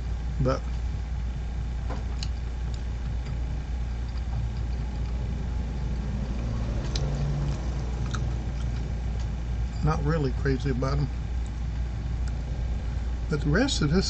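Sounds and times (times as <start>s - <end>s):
low hum and rumble: 0.0s - 14.0s.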